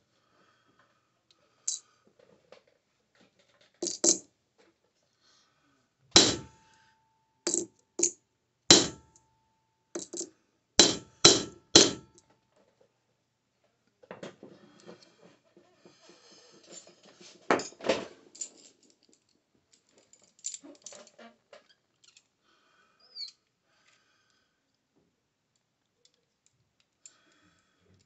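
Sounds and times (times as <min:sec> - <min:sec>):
hammer striking metal on anvil: 0:06.2 - 0:06.6, 0:08.7 - 0:09.1, 0:10.8 - 0:12.2.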